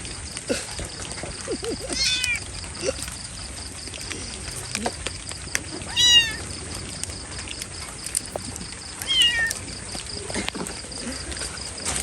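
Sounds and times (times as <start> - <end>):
background hiss: 0.0 - 12.0
kitten meowing: 2.0 - 2.4, 5.9 - 6.4, 9.0 - 9.6.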